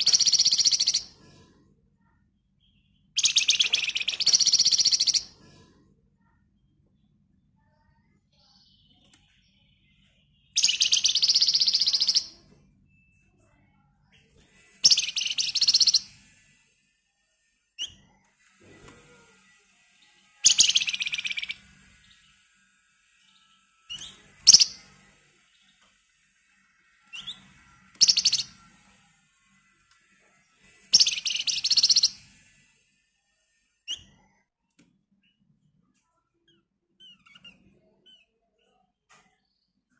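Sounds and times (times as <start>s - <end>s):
bird singing rattling trills: 0.0s - 1.1s, 3.0s - 5.3s, 10.3s - 12.4s, 14.8s - 16.1s, 20.2s - 22.5s, 23.3s - 24.9s, 27.0s - 28.7s, 30.8s - 32.2s
songbird chirps and rattling trills: 0.0s - 34.4s.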